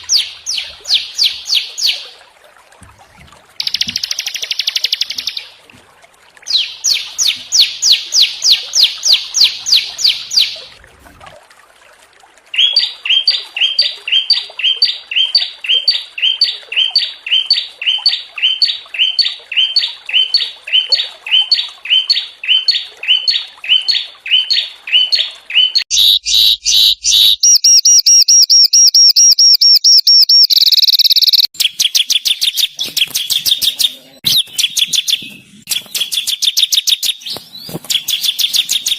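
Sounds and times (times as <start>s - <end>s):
songbirds singing: 0.0s - 2.1s, 6.5s - 10.7s.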